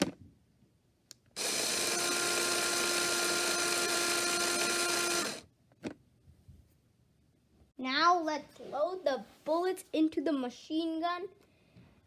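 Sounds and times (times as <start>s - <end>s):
small electric motor whirring: 1.4s - 5.4s.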